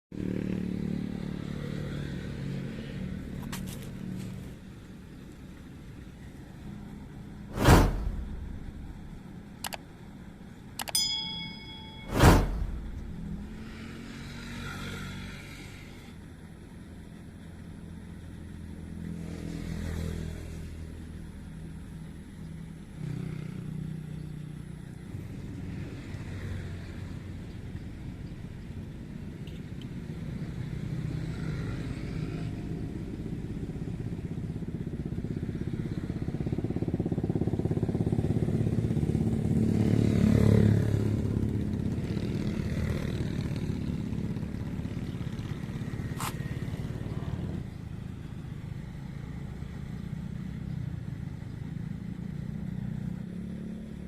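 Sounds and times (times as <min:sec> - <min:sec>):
engine running: 0:06.2 - 0:16.0.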